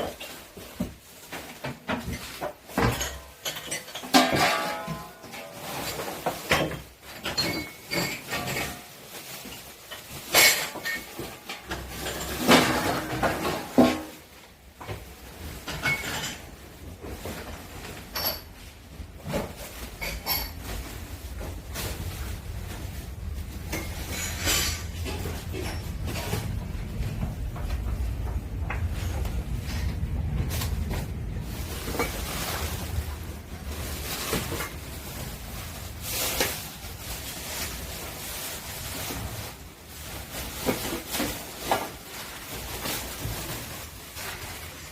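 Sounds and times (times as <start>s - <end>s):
steady low rumble: 20.7s - 38.8s.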